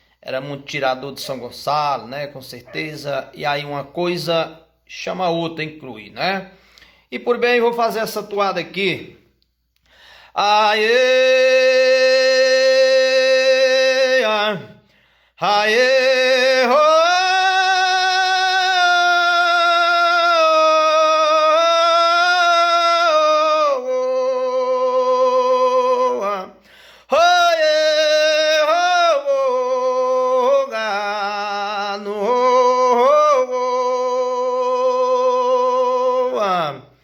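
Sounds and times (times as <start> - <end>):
man singing long held notes: 10.3 - 14.8, 15.4 - 37.0.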